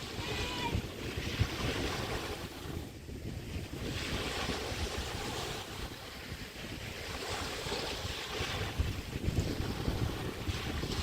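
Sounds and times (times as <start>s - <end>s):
waves washing on beach: 0.0s - 11.0s
wind buffeting microphone: 0.0s - 11.0s.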